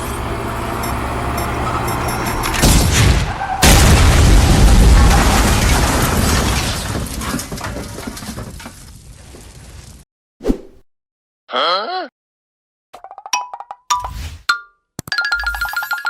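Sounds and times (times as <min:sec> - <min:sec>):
explosion boom and rumble: 0:02.6 - 0:10.0.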